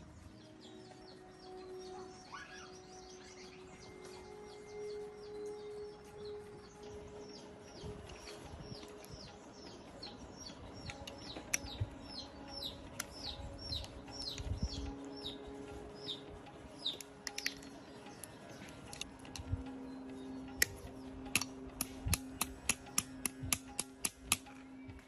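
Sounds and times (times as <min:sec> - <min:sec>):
bird chirping: 0:00.0 - 0:25.0
low steady hum: 0:00.0 - 0:25.0
sharp clicks: 0:10.4 - 0:15.4, 0:16.8 - 0:19.8, 0:20.5 - 0:25.0.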